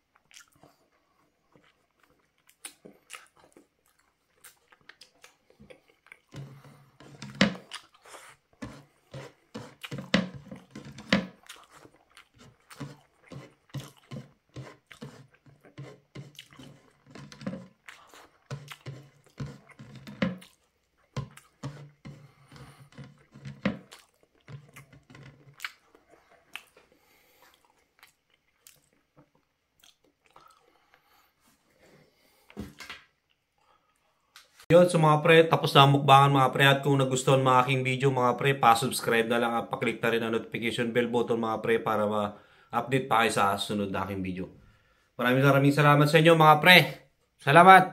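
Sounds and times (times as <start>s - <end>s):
wet chewing mouth clicks: 0.1s - 30.9s.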